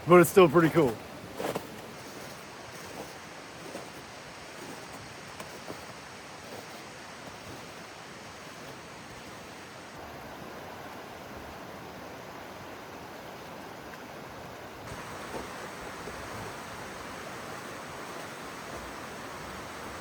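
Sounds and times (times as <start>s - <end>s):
river rapids roaring: 14.8s - 20.0s.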